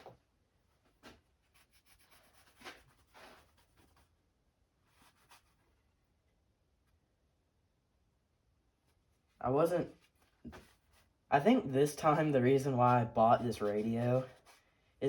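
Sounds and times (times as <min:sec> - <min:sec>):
cloth rubbing on metal: 0:01.6 - 0:04.0.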